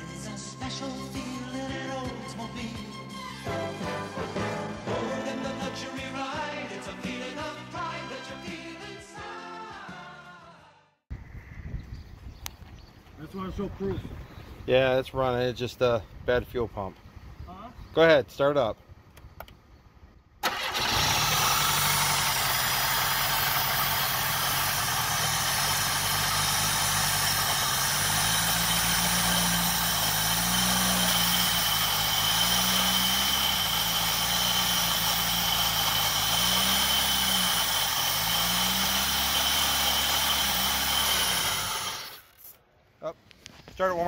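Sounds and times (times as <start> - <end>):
car engine starting and revving: 20.4 - 42.3.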